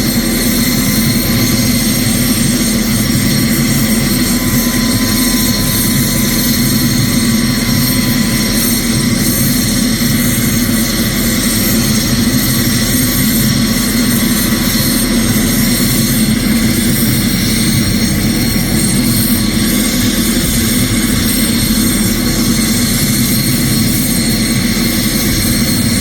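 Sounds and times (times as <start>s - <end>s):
helicopter turbine engine: 0.0s - 26.0s.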